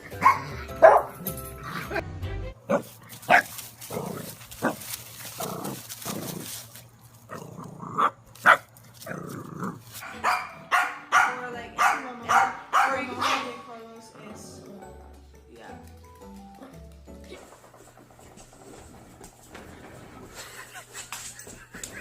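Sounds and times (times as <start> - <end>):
dog barking: 0.2 - 1.2, 2.7 - 3.5, 8.0 - 8.7, 10.0 - 13.6.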